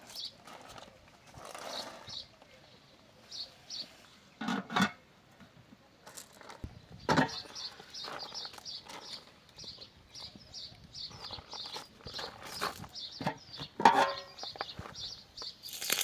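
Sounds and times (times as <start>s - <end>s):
small birds chirping: 0.0s - 4.4s, 5.9s - 16.0s.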